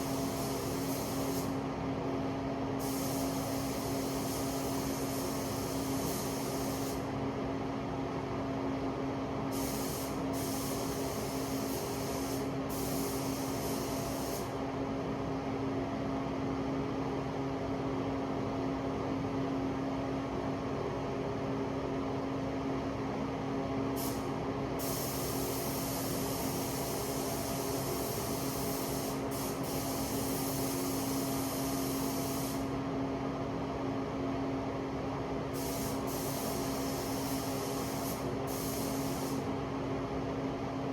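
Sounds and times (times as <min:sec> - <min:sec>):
paint spray gun hissing: 0:00.0 - 0:01.6, 0:02.8 - 0:07.0, 0:09.5 - 0:14.6, 0:24.0 - 0:32.7, 0:35.6 - 0:39.5.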